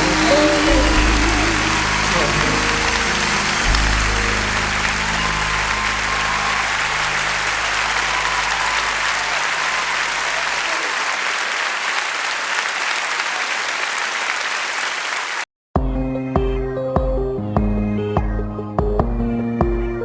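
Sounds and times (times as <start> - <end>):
band's held low notes: 0.0 - 10.5
audience applauding: 0.0 - 15.5.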